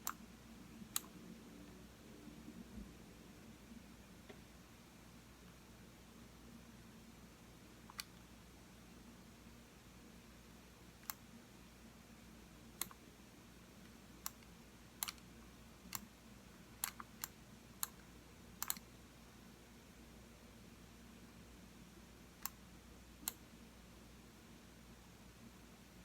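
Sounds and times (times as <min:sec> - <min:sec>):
computer mouse clicking: 0:00.0 - 0:00.2, 0:00.9 - 0:01.2, 0:07.9 - 0:08.2, 0:11.0 - 0:11.2, 0:12.8 - 0:13.0, 0:13.8 - 0:15.3, 0:15.9 - 0:16.1, 0:16.8 - 0:18.9, 0:22.4 - 0:22.6, 0:23.2 - 0:23.4
faint room hum: 0:00.0 - 0:26.0.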